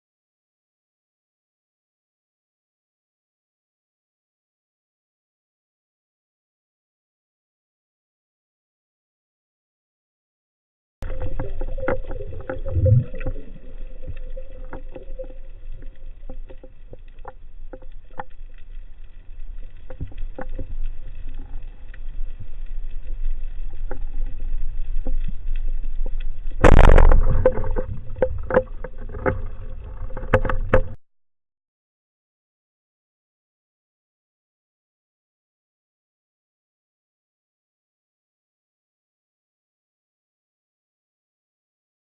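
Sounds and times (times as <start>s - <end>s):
muffled underwater rumble: 11.0s - 31.0s
sharp clicks and crackles: 11.0s - 31.0s.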